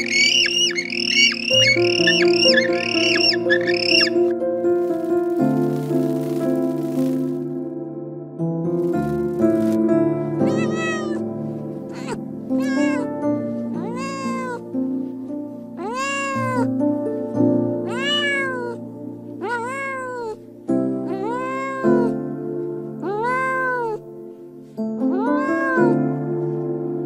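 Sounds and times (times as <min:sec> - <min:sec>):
cat meowing: 0:00.0 - 0:04.2, 0:10.4 - 0:11.2, 0:11.9 - 0:13.2, 0:13.8 - 0:14.7, 0:15.8 - 0:16.7, 0:17.8 - 0:18.8, 0:19.4 - 0:20.4, 0:21.0 - 0:22.2, 0:23.0 - 0:24.0, 0:25.1 - 0:26.1
soft background music: 0:00.0 - 0:27.0.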